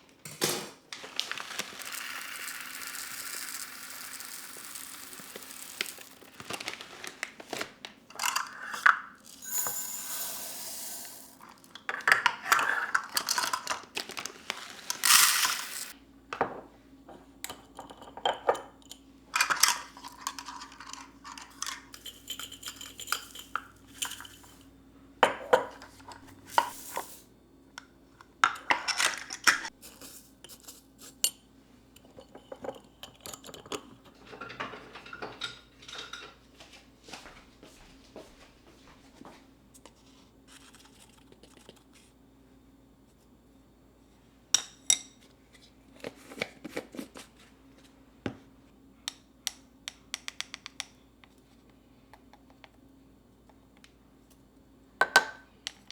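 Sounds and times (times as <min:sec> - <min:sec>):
dishes and cutlery clinking: 0:32.0 - 0:36.4.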